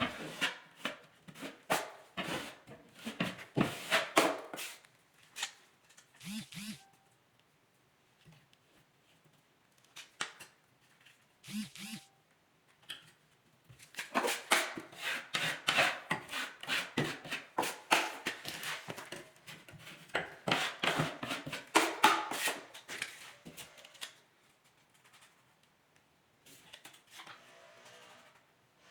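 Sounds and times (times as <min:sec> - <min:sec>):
hand tool scraping drywall: 0:00.0 - 0:04.8, 0:14.0 - 0:24.0.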